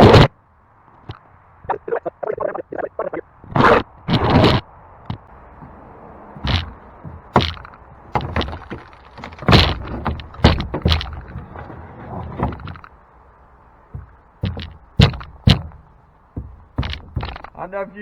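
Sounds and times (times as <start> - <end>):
knocks and thunks on wooden deck: 3.5 - 17.8.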